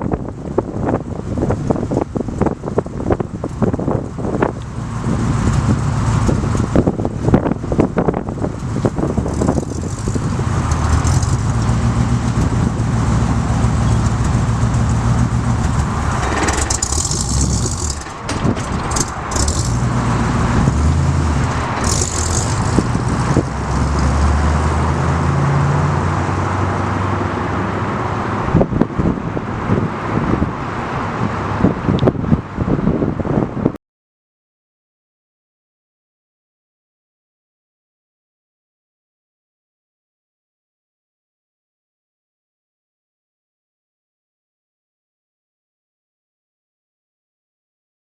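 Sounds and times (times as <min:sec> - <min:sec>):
wind rush: 0:00.0 - 0:33.8
vehicle engine running: 0:00.1 - 0:29.4
light rattles: 0:08.2 - 0:24.0.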